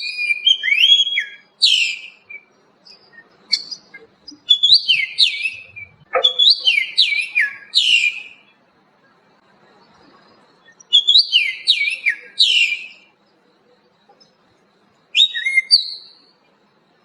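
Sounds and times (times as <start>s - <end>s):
songbird whistled phrases: 0.0s - 8.5s, 10.6s - 13.1s, 15.2s - 16.2s
songbird chirps: 0.0s - 17.0s.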